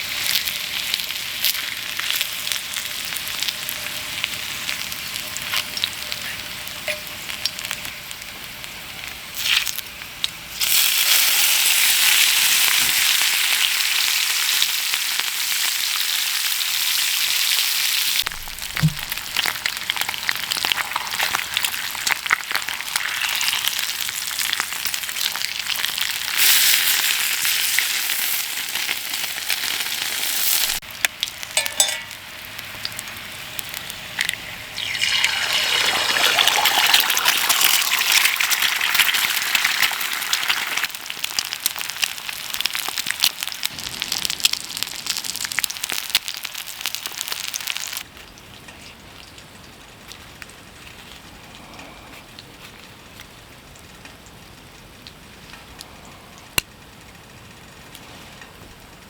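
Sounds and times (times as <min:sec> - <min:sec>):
rain falling: 0:43.6 - 0:45.8.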